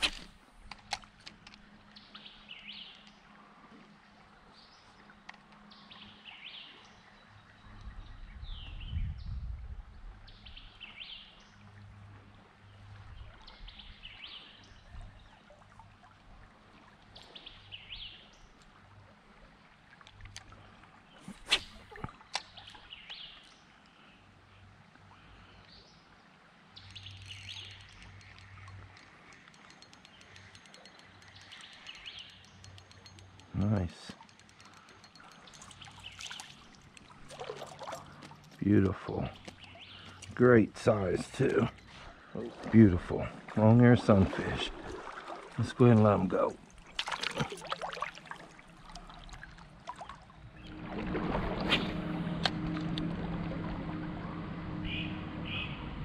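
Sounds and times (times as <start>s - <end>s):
birds chirping: 26.8s - 47.6s, 48.8s - 56.0s
low rumble: 50.4s - 56.0s
birds chirping downward: 50.5s - 56.0s.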